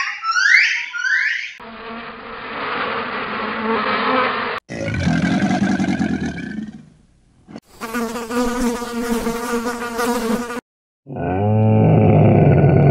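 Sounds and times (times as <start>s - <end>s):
flying insect buzzing: 1.6s - 4.6s, 7.7s - 10.6s.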